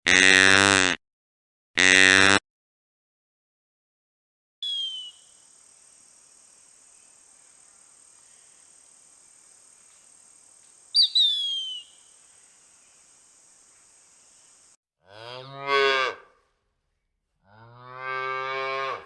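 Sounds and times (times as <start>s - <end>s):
bird whistled calls: 4.6s - 5.4s, 10.9s - 13.1s
high-pitched insect drone: 4.6s - 14.8s.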